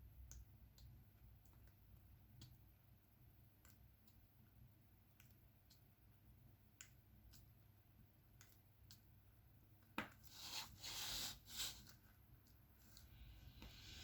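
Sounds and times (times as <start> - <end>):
rustling scrape: 10.3 - 11.9.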